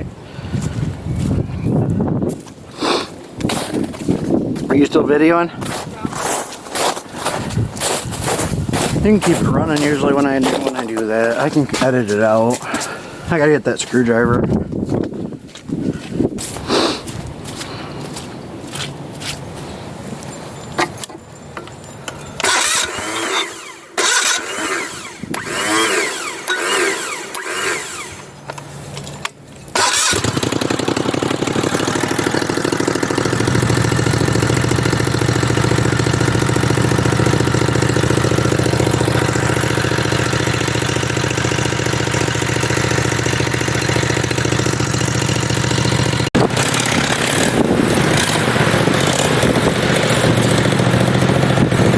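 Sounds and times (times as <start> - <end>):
small engine starting and idling: 7.8 - 12.9, 22.0 - 51.9
clicks and handling noises: 28.4 - 30.0.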